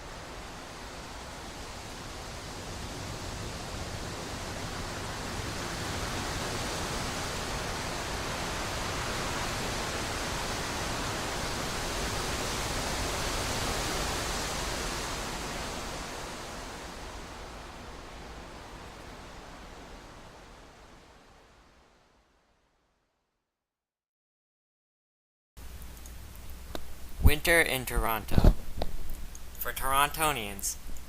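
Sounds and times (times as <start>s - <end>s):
steady rushing noise: 0.0s - 21.9s.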